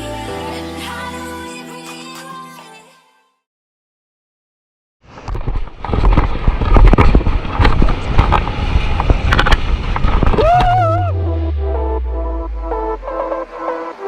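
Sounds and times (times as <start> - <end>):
water splashing crackles: 5.1 - 10.6
wind and surf rushing: 5.1 - 14.0.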